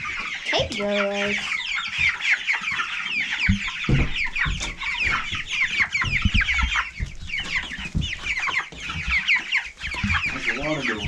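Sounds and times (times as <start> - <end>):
chicks peeping: 0.0 - 11.0
low thumps: 3.4 - 9.2.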